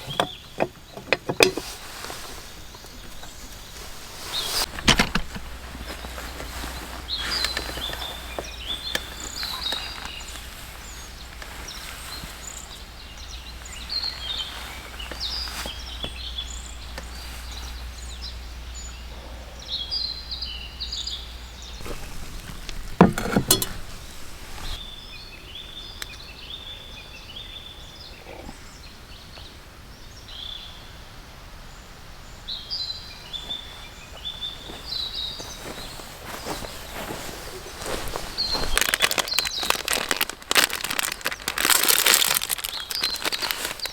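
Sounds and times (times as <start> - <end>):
birds chirping and singing: 0.0 - 30.8, 32.4 - 43.9
knock or rustle: 21.8 - 24.8.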